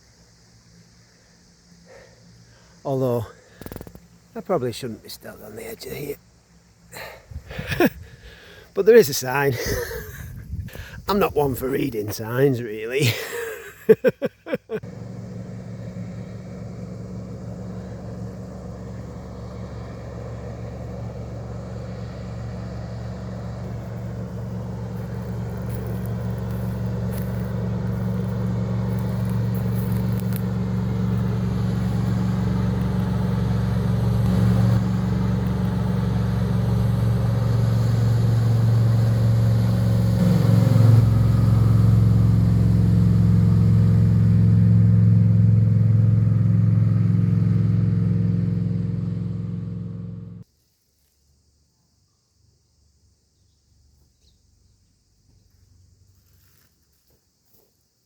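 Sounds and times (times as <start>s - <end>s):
sharp clicks: 3.6s - 4.1s
low motor hum: 14.8s - 50.4s.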